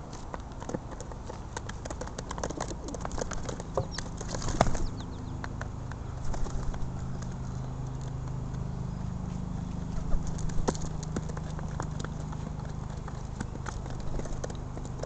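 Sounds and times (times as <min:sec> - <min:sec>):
pigeons pecking and scrabbling: 0:00.0 - 0:15.0
wing flutters: 0:02.5 - 0:05.1, 0:06.2 - 0:08.1.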